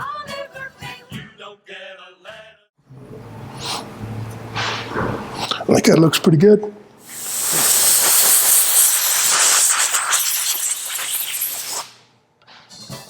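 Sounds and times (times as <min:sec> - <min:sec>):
compressed air hissing from blow gun: 0:07.0 - 0:12.0.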